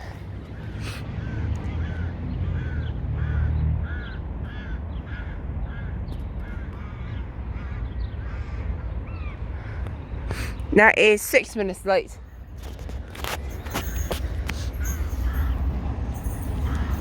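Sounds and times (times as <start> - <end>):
crow cawing: 0.8 - 9.9.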